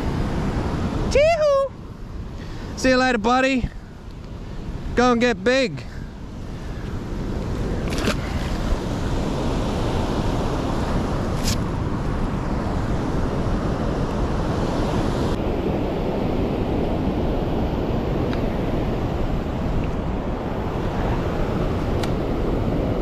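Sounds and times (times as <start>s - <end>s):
wind buffeting microphone: 5.8s - 23.0s.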